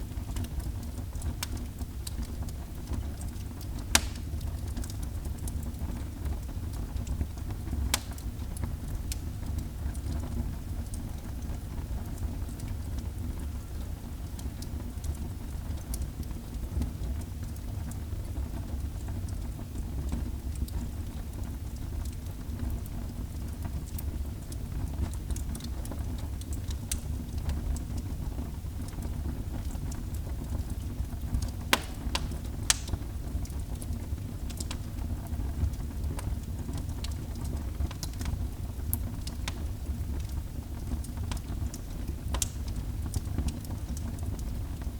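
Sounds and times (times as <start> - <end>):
fire crackling and popping: 0.0 - 44.9
fire flames rumbling: 3.8 - 4.5, 31.6 - 33.6.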